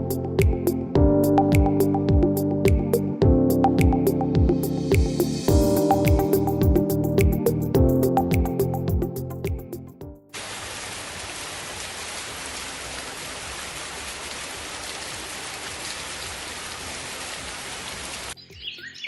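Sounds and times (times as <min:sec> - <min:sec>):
white noise machine rain hiss: 0:10.4 - 0:18.4.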